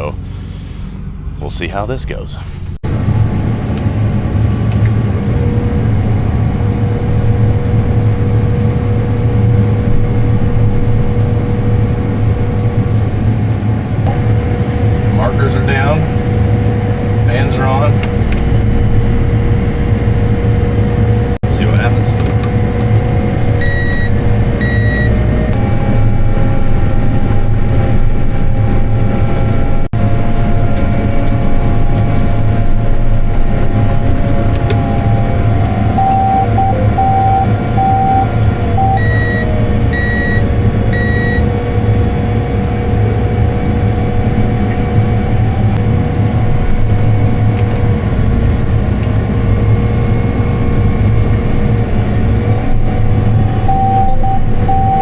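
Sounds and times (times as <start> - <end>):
fans whining: 0.0 - 55.0
tractor engine droning: 0.0 - 55.0
short electronic beeps: 36.0 - 40.4, 41.0 - 41.4, 53.6 - 55.0.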